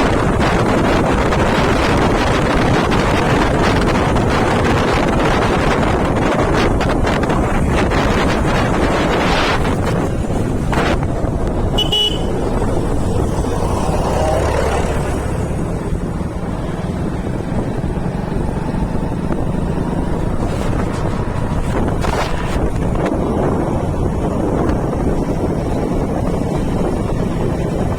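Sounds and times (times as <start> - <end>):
motorcycle engine running: 0.0 - 27.9
wind buffeting microphone: 0.0 - 27.9
short high horn toot: 11.7 - 12.4.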